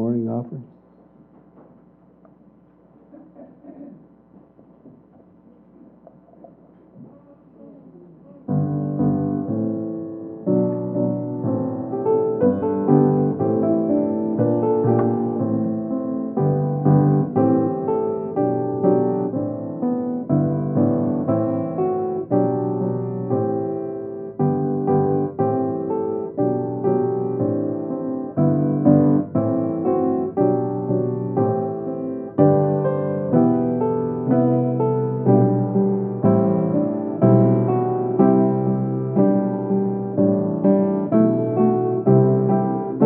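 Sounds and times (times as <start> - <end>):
faint room murmur: 0.0 - 32.8
piano playing slow chords: 7.2 - 43.0.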